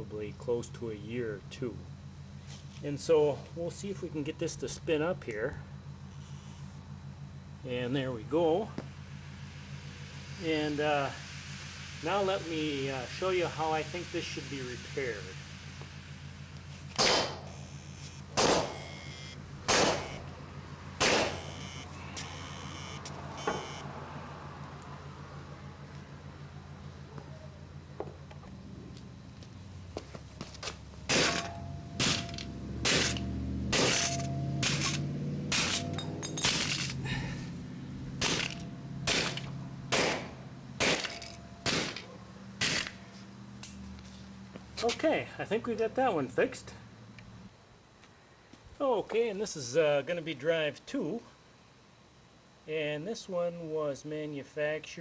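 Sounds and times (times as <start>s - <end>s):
hard drive humming: 0.0s - 52.7s
sharp metallic clacks: 31.1s - 37.0s.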